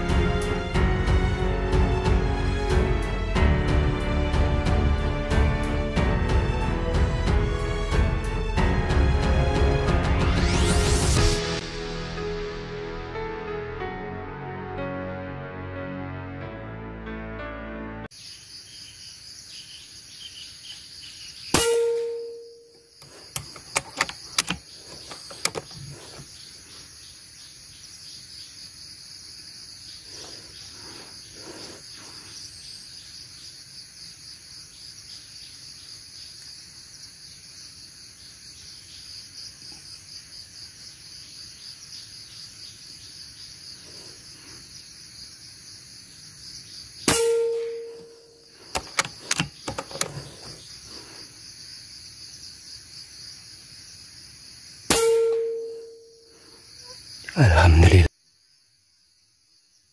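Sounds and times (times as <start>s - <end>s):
crickets and cicadas droning: 18.1s - 59.9s
small clicks: 23.3s - 25.8s.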